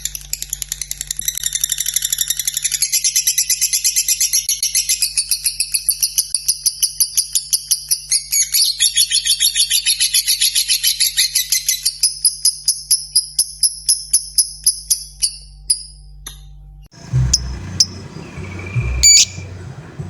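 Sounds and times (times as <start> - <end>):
lovebird chattering: 17.0 - 19.6.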